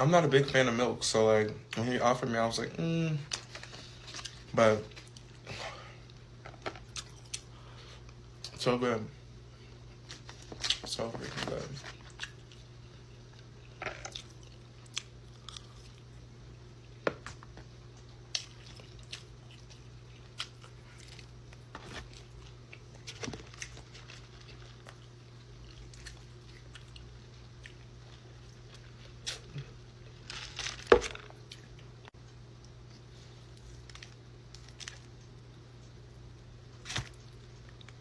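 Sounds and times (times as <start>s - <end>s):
person chewing crunchy food: 3.3s - 8.5s, 11.5s - 32.0s.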